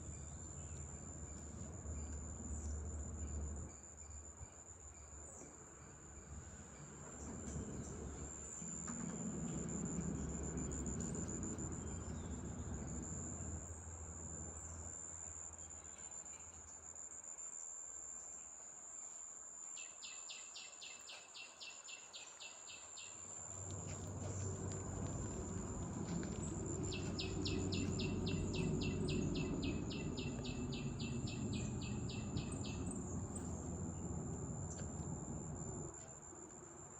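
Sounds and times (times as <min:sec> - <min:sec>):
insects droning: 0:00.0 - 0:36.9.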